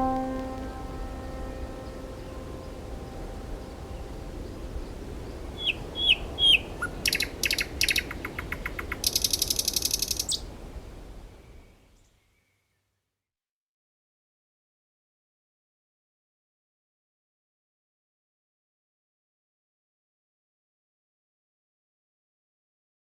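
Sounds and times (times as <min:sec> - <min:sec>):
lingering musical tone: 0:00.0 - 0:05.2.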